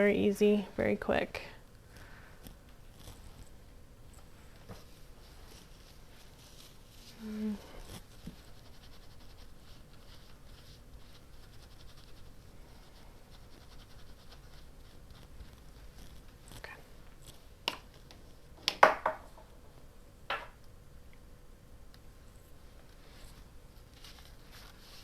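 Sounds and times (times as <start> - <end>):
paper scratching and rustling: 4.8 - 17.4, 23.2 - 25.0.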